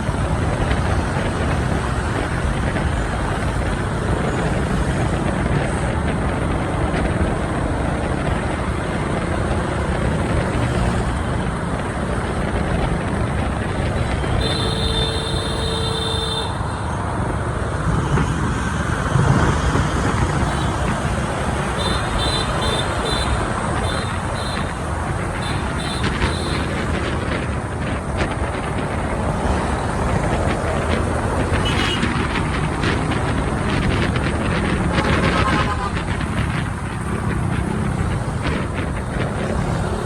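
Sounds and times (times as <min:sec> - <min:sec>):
vehicle horn: 0:14.4 - 0:16.9, 0:21.7 - 0:24.8, 0:25.4 - 0:26.8, 0:31.6 - 0:32.1, 0:34.9 - 0:36.0
motorbike engine: 0:19.1 - 0:40.0.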